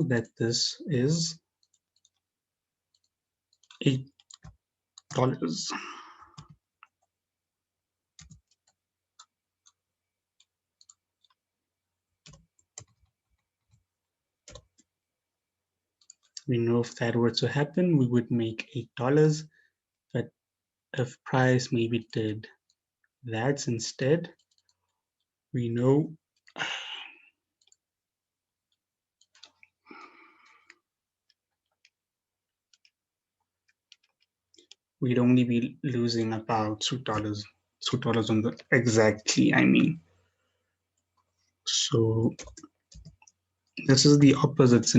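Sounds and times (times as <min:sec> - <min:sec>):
computer mouse clicks: 0:12.2 - 0:13.8.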